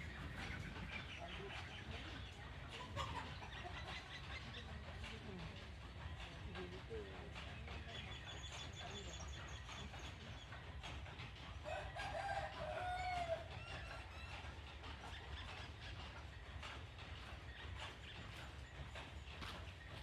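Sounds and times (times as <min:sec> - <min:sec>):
rooster crowing: 0:11.7 - 0:13.5.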